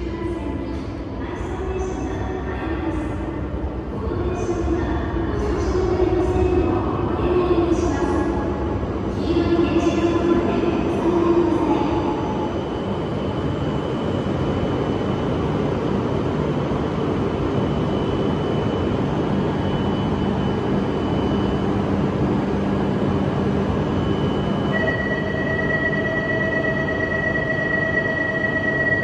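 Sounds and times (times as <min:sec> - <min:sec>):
train hum: 0:00.0 - 0:29.0
steady high tone: 0:23.8 - 0:29.0.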